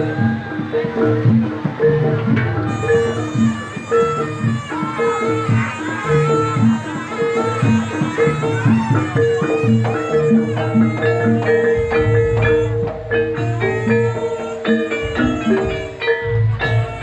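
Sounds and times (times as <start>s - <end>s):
drum strokes: 0.0s - 17.0s
gamelan music: 0.0s - 17.0s
low deep sound: 10.3s - 17.0s.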